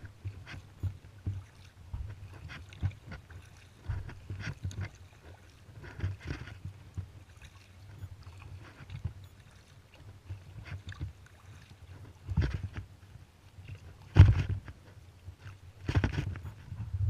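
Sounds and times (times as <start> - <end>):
wind rumble on microphone: 0.0 - 5.2, 11.8 - 17.0
paddle strokes splashing water: 0.0 - 17.0.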